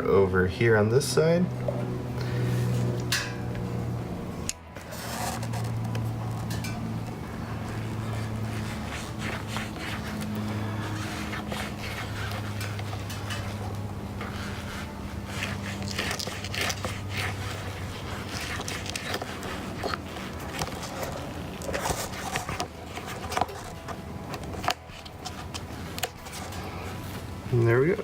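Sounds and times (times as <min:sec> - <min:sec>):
low steady hum: 0:00.0 - 0:28.0
hole cutter scraping rubber mat: 0:04.5 - 0:26.9.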